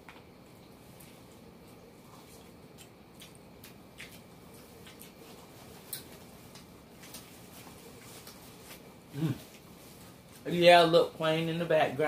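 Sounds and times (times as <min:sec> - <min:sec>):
low room hum: 0:00.0 - 0:12.0
chewing and mouth clicks: 0:02.1 - 0:07.3.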